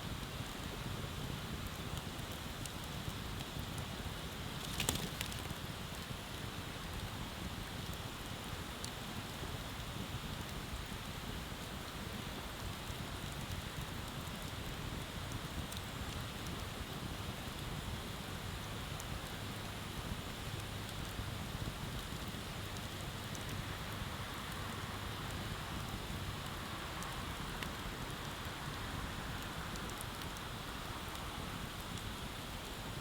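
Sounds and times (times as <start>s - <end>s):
bonfire crackling: 0.1s - 33.0s.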